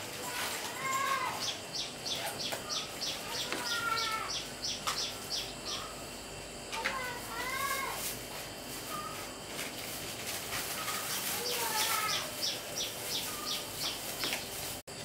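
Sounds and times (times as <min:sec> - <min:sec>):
bird wavering cry: 0:01.2 - 0:06.1, 0:11.7 - 0:14.0
bird chirping: 0:01.4 - 0:06.2, 0:11.0 - 0:14.6.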